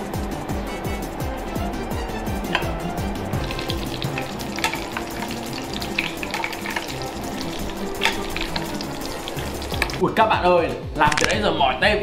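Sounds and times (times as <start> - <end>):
chicken frying in oil: 2.5 - 10.0.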